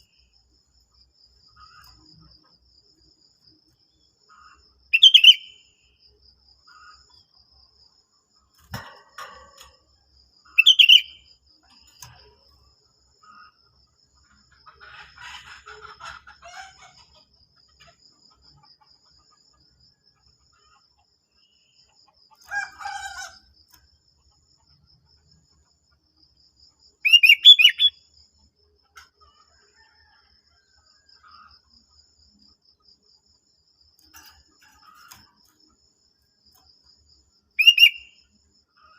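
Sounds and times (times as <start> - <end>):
bulbul singing: 5.0 - 5.6, 10.5 - 11.2, 37.6 - 38.2.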